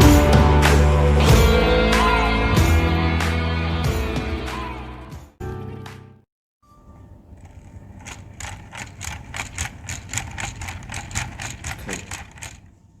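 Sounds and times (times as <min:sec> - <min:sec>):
sharp mechanical clicks: 0:07.3 - 0:12.8.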